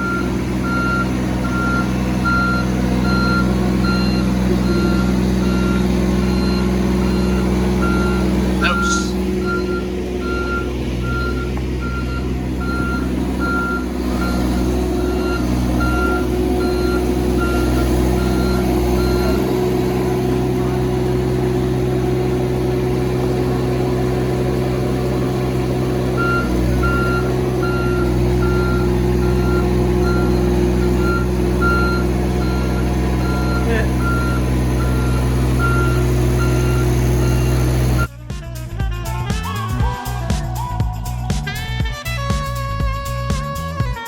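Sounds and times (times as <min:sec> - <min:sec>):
reversing alarm beeping: 0:00.0 - 0:20.5, 0:26.1 - 0:38.1
diesel engine running: 0:00.0 - 0:44.0.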